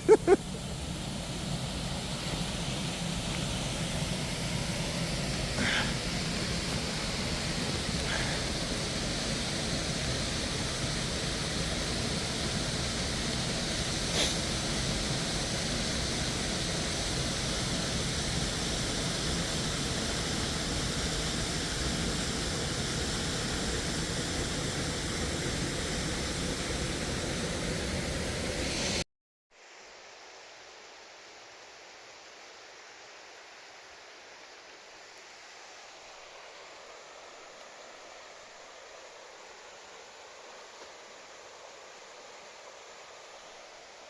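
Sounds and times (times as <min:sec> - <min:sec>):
waterfall roaring: 0:00.0 - 0:29.0.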